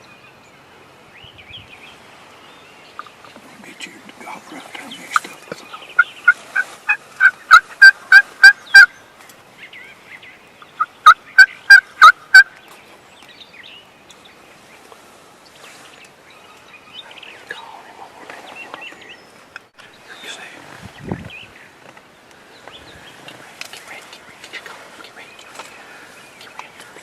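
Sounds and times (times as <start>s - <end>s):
turkey yelping: 6.0s - 8.9s, 10.8s - 12.5s.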